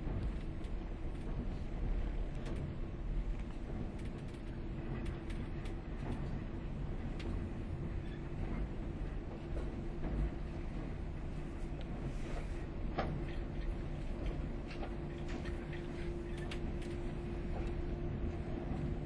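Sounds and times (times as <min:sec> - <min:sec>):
train running rumble: 0:00.0 - 0:19.0
light creaks and clicks: 0:03.3 - 0:06.4, 0:12.9 - 0:17.8.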